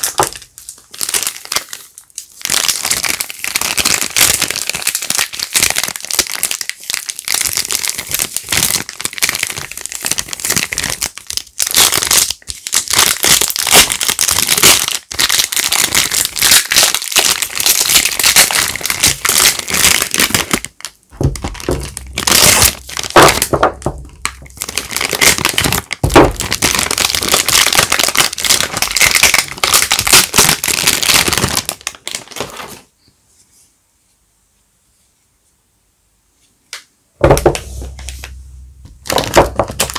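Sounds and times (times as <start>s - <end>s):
wrappers crinkling and tearing: 0.0s - 32.9s, 37.4s - 39.9s.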